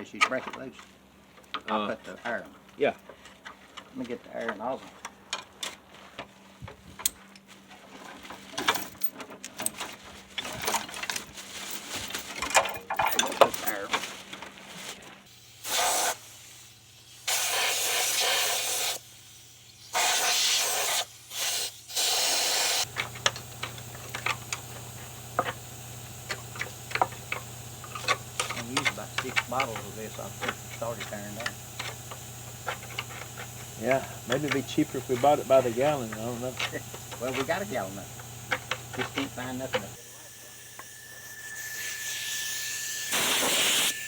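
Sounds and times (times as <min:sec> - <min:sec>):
metal tool clinks and knocks: 0:12.4 - 0:13.8
compressed air nozzle hissing: 0:15.3 - 0:44.0
steady low hum: 0:22.8 - 0:41.5.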